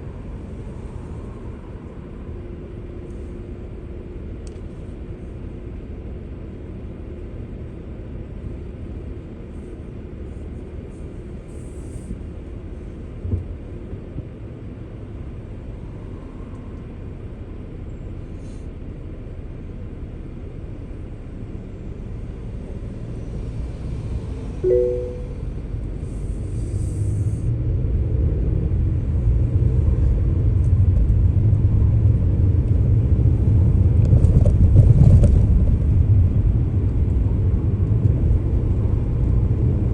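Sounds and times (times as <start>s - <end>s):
car engine and road rumble: 0.0s - 39.9s
two-note beep: 24.6s - 25.4s.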